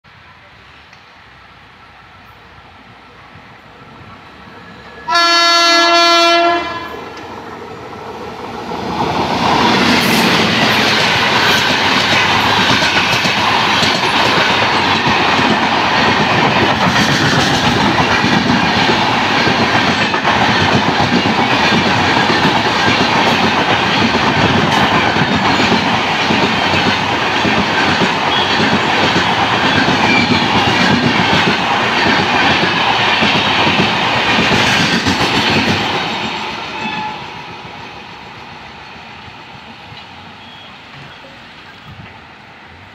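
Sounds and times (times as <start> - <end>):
train wheels rushing on rails: 0.1 - 42.9
train horn blast: 5.0 - 7.2.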